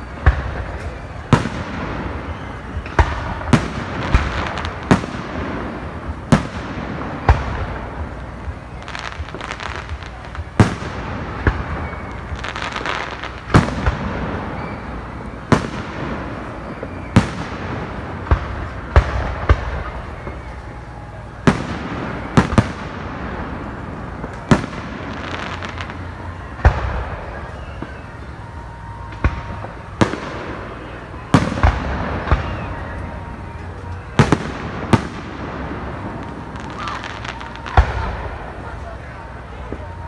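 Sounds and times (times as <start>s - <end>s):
background crowd hubbub: 0.0s - 40.0s
fireworks booming: 0.0s - 40.0s.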